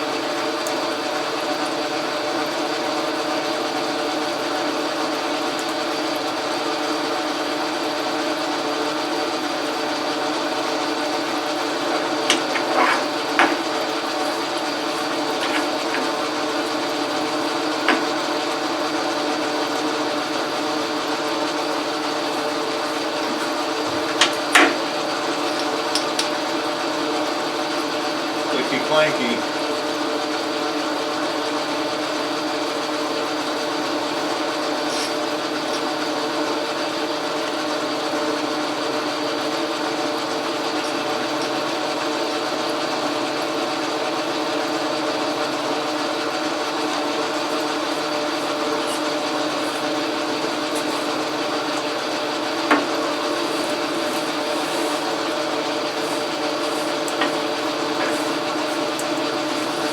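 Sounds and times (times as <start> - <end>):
metal lathe motor humming: 0.0 - 59.9.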